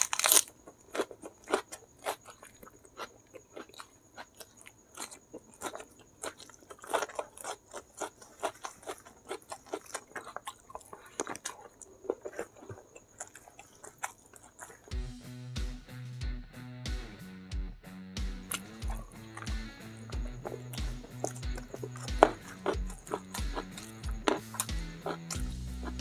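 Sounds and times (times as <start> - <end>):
chewing and crunching: 0.0 - 15.0, 18.4 - 26.0
music: 14.9 - 26.0.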